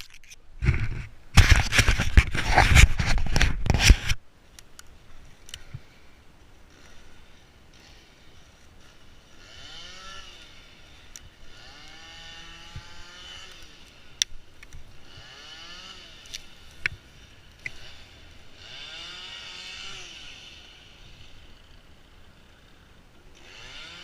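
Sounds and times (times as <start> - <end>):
chainsaw engine revving: 6.6 - 24.0.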